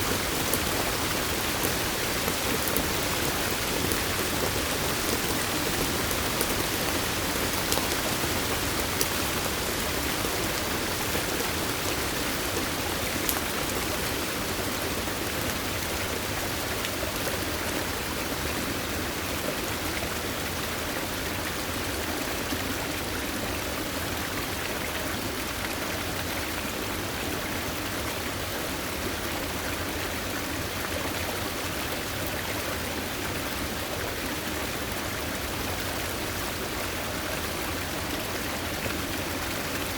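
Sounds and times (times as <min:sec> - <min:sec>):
sharp drip-like ticks: 0:00.0 - 0:14.4
stream water rushing: 0:00.0 - 0:39.9.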